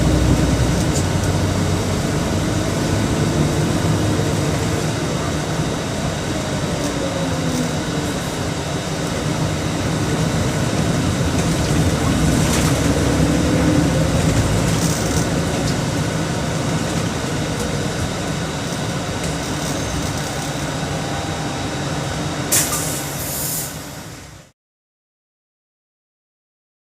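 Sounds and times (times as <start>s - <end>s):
diesel bus engine rumbling: 0.0s - 24.5s
short hiss: 22.5s - 24.0s.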